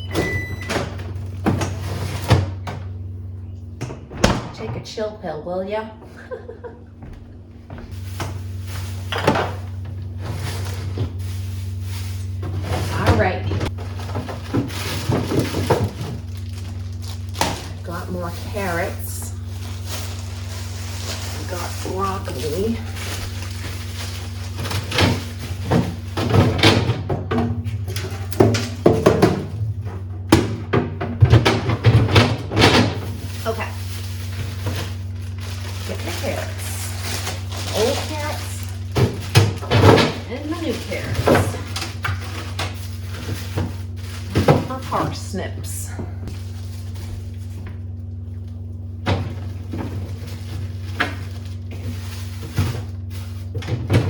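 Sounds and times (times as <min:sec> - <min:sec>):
produce handled on fridge shelves: 0:00.0 - 0:05.2, 0:06.0 - 0:54.0
steady low hum: 0:00.0 - 0:54.0
containers knocking in refrigerator: 0:24.6 - 0:33.2.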